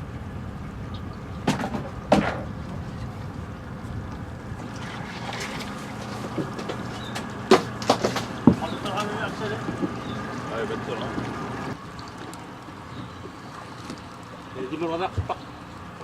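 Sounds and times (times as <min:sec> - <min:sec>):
rushing water: 0:00.0 - 0:16.0
wind: 0:00.0 - 0:16.0
paddle strokes in water: 0:01.5 - 0:15.4
sharp splashes: 0:04.6 - 0:09.2.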